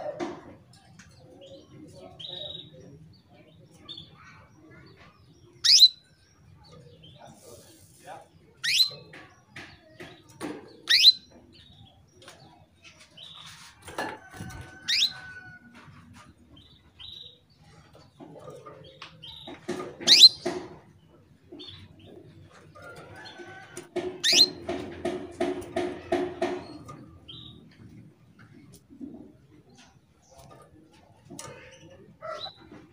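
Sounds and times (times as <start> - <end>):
canary sharp sweeping calls: 5.6 - 6.0, 8.6 - 9.1, 10.8 - 11.3, 14.4 - 15.4, 20.0 - 20.5, 24.2 - 24.7.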